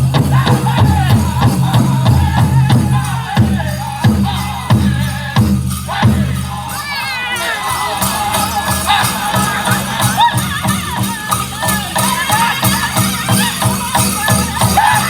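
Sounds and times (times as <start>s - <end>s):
big drum steady beat: 0.0s - 6.9s
men singing high wavering: 0.0s - 15.0s.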